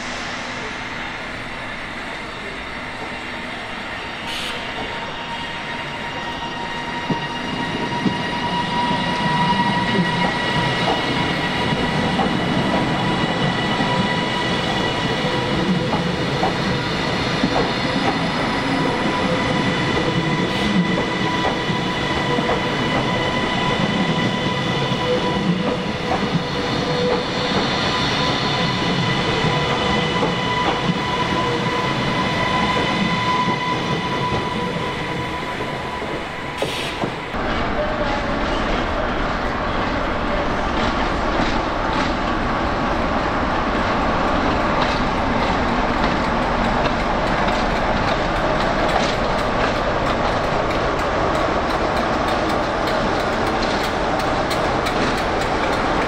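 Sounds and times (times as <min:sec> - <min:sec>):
train rumble: 0:00.0 - 0:56.0
train wheel clicks: 0:44.5 - 0:56.0.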